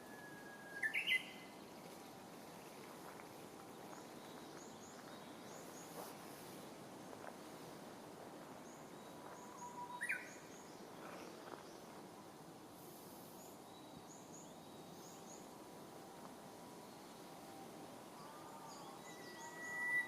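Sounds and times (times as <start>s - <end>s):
background hiss: 0.0s - 20.0s
warbler singing: 0.1s - 2.0s, 18.1s - 20.0s.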